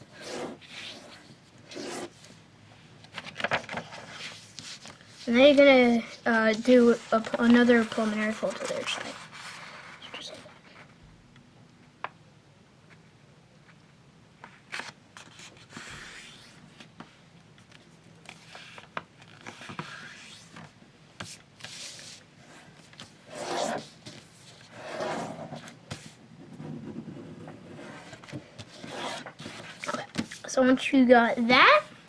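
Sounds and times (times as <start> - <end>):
paper being folded and creased: 3.1 - 5.6, 6.4 - 10.6, 14.5 - 16.9, 17.6 - 20.7.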